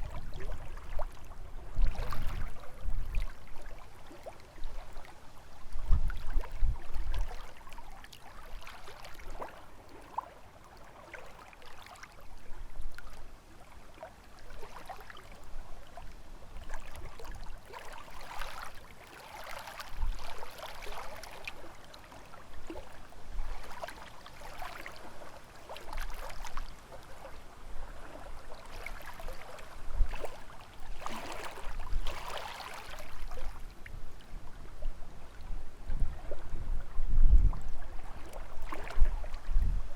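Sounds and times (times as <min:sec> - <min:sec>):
wind rumble on microphone: 0:00.0 - 0:08.0, 0:19.9 - 0:21.2, 0:25.8 - 0:39.9
lake waves lapping on shore: 0:00.0 - 0:39.9.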